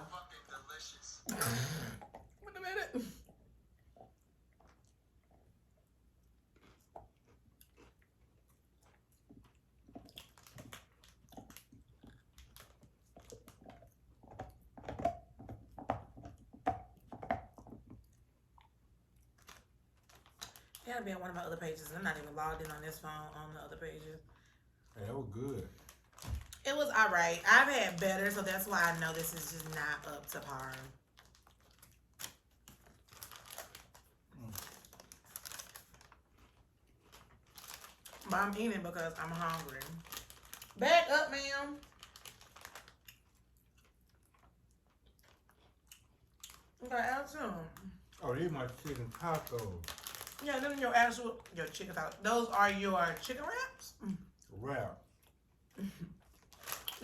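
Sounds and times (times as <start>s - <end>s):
person chewing food: 3.2s - 20.8s, 31.1s - 38.3s, 41.9s - 46.8s
paper and plastic packaging crinkling: 10.2s - 11.7s, 12.3s - 13.5s, 19.4s - 23.3s, 25.0s - 43.3s, 48.1s - 53.6s, 56.2s - 57.0s.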